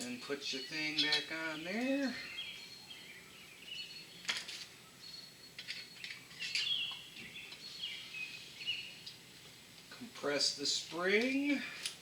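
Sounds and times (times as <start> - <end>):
bird chirping: 0.0 - 9.2.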